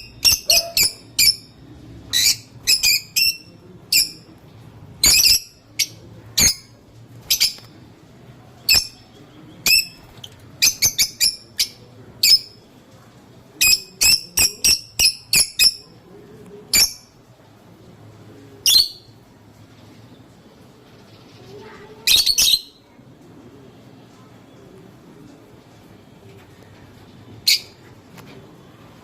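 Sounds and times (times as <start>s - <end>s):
bird shrill chirping calls: 0.0s - 4.2s, 21.5s - 22.8s.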